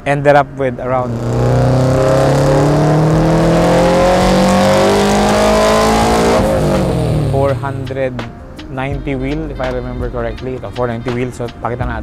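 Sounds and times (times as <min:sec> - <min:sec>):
turbocharged engine accelerating hard: 0:00.8 - 0:08.0.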